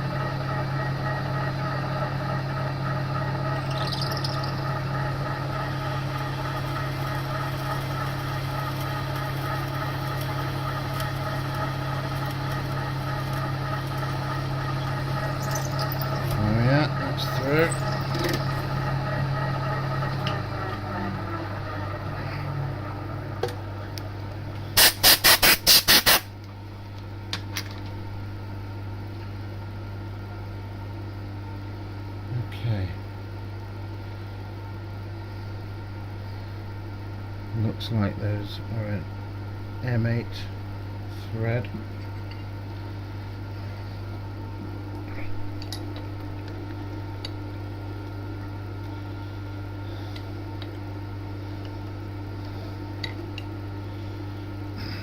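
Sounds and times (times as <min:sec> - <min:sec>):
milling machine humming: 0:00.0 - 0:26.2
air blow gun hissing blasts: 0:24.8 - 0:26.3.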